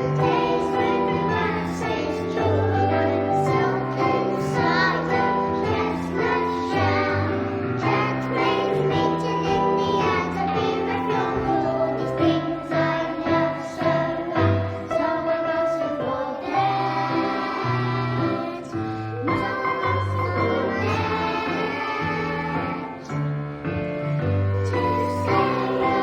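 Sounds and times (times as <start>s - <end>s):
children singing: 0.0s - 23.3s, 24.4s - 26.0s
instrumental accompaniment: 0.0s - 26.0s.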